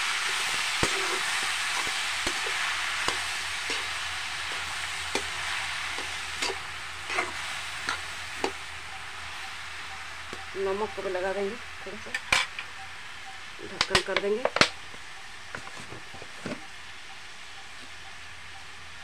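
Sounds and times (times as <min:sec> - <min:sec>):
vegetables sizzling in hot oil: 0:00.0 - 0:19.0
metal spatula scraping pan: 0:00.2 - 0:08.6.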